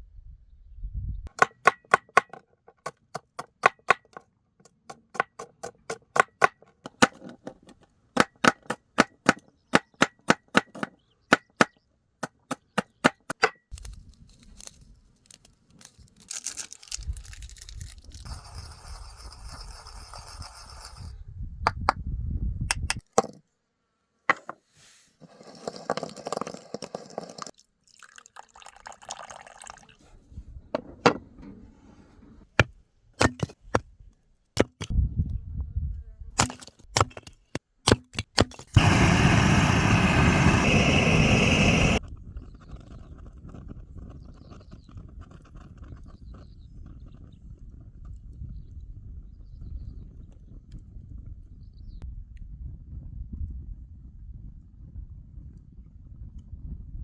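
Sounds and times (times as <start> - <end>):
rustling noise: 13.7 - 19.5, 24.4 - 26.2.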